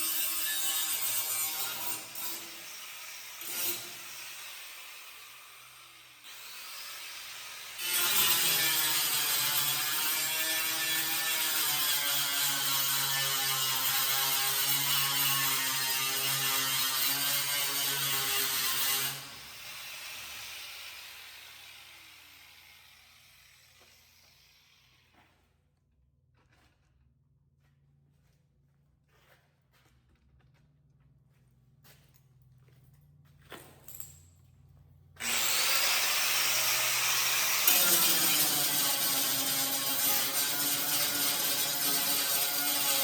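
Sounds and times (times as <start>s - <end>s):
electric grinder on sheet metal: 0.0s - 25.2s, 35.2s - 43.0s.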